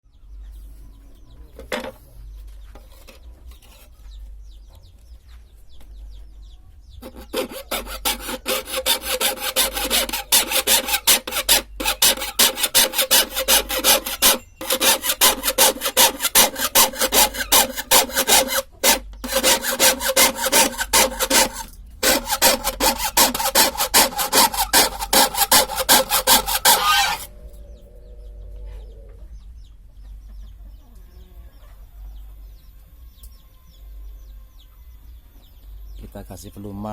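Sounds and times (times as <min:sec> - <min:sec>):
hand saw cutting wood: 0:07.0 - 0:27.3.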